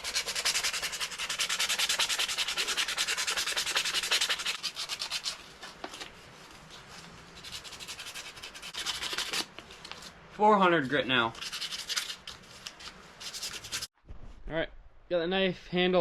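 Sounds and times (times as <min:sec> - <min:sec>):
sandpaper rubbing by hand: 0:00.0 - 0:05.4, 0:07.4 - 0:09.5, 0:11.3 - 0:12.4, 0:13.2 - 0:13.9.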